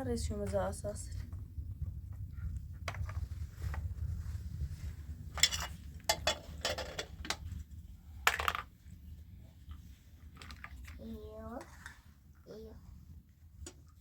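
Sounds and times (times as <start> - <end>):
steady low rumble: 0.0 - 10.4
objects clinking and clattering: 5.3 - 7.6, 8.2 - 8.7.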